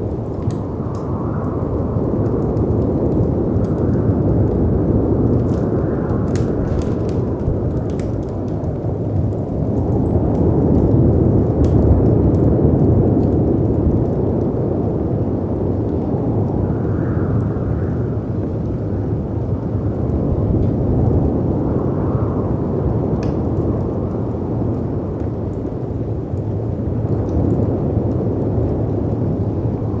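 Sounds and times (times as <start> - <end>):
fireplace crackling: 0.0 - 4.5, 5.1 - 10.9
wind rushing: 0.0 - 9.8.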